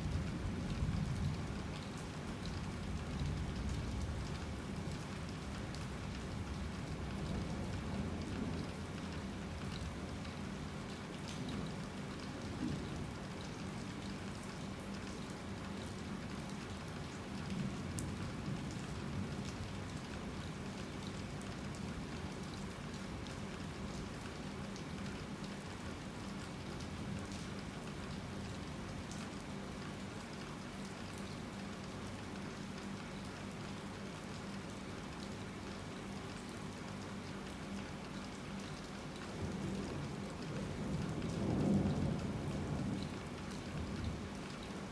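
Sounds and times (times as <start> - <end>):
heavy rain falling: 38.7 - 44.9.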